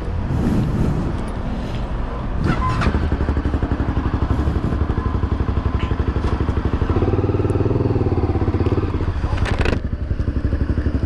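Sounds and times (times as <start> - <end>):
motorcycle engine running: 2.8 - 11.0.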